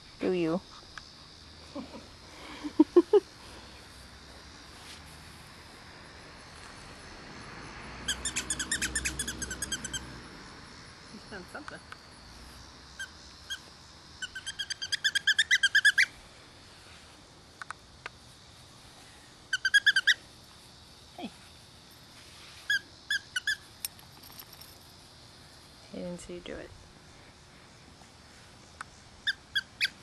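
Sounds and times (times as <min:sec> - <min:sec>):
bird rapid high chirps: 0:14.2 - 0:16.1.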